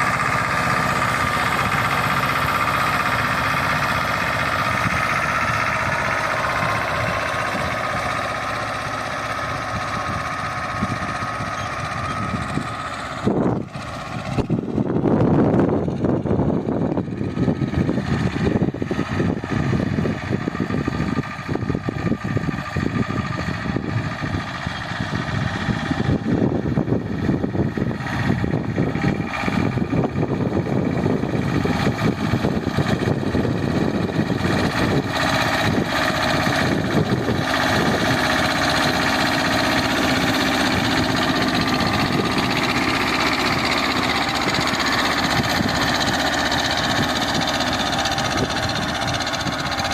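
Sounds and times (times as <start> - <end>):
diesel tractor engine running: 0.0 - 49.9.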